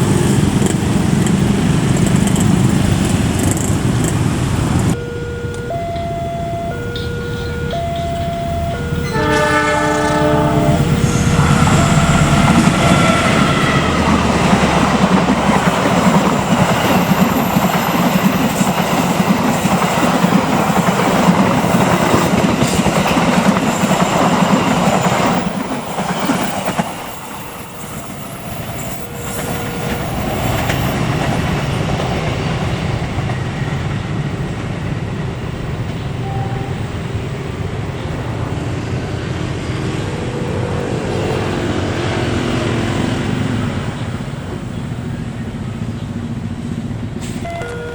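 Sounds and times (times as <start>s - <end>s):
train wheels clattering on rails: 0.0s - 5.0s, 7.7s - 36.2s.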